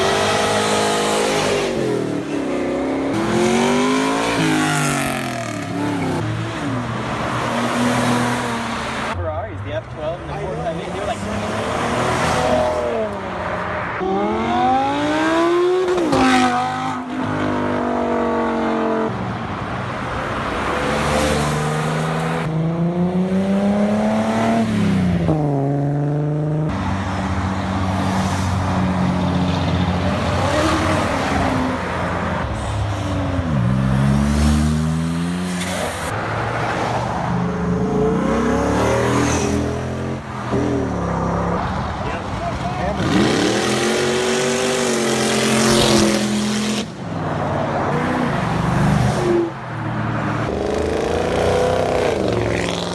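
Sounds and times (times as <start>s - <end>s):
car engines accelerating: 0.0s - 52.9s.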